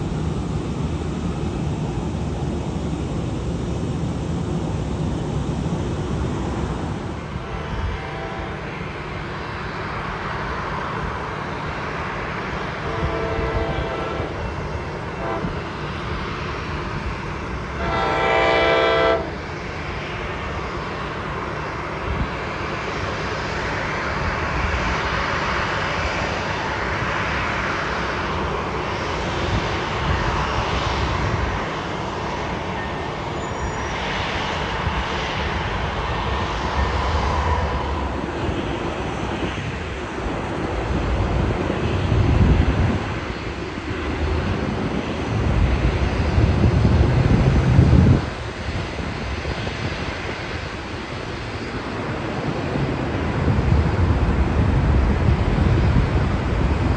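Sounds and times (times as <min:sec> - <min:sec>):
rushing rumble: 0:00.0 - 0:08.8, 0:24.1 - 0:56.9
train horn blast: 0:07.3 - 0:09.3, 0:12.7 - 0:15.8, 0:17.8 - 0:19.5.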